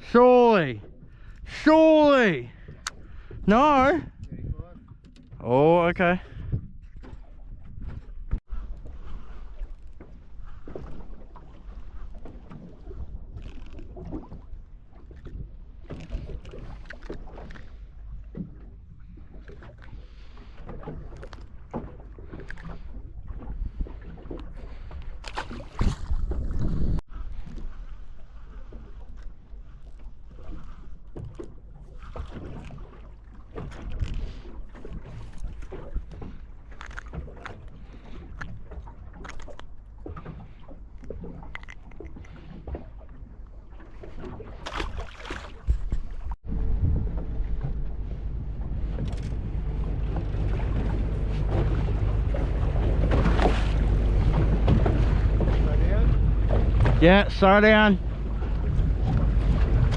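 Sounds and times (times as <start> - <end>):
water lapping against boat hull: 0.0 - 59.9
wind rumble on microphone: 2.5 - 5.4, 6.2 - 21.6, 22.2 - 32.9, 45.6 - 59.9
small knocks and splashes: 9.5 - 27.7, 28.6 - 57.5
steady low rumble: 46.3 - 59.9.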